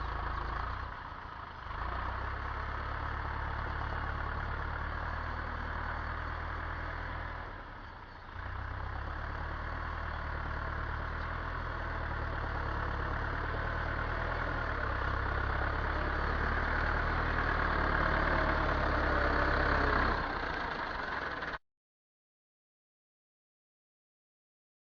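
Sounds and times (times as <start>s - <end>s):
tractor diesel engine running: 0.0s - 21.6s.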